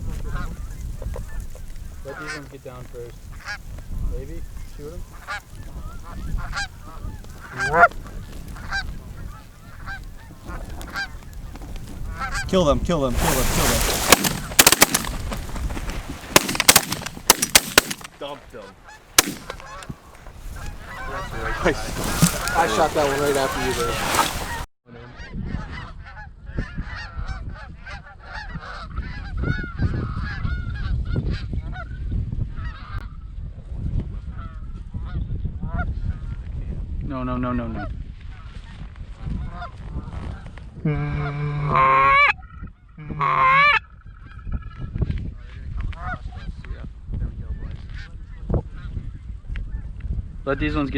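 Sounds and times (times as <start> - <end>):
geese honking: 2.1 - 2.5, 5.0 - 11.4, 12.0 - 12.6, 18.8 - 24.7, 40.9 - 42.4, 43.0 - 43.8.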